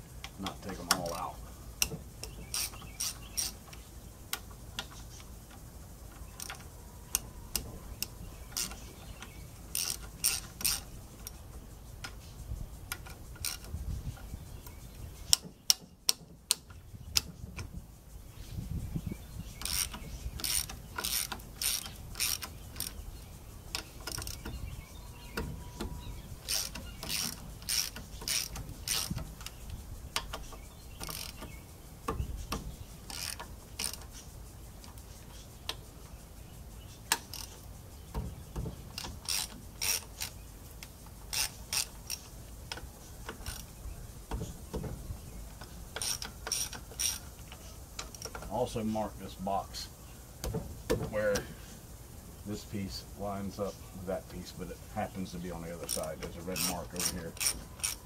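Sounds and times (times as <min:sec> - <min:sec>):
ratchet wrench clicking: 0:01.8 - 0:08.9, 0:09.7 - 0:11.4, 0:12.8 - 0:13.8, 0:19.6 - 0:23.1, 0:23.7 - 0:24.6, 0:25.2 - 0:35.0, 0:37.1 - 0:37.7, 0:38.9 - 0:43.8, 0:45.6 - 0:48.5, 0:55.8 - 0:58.0.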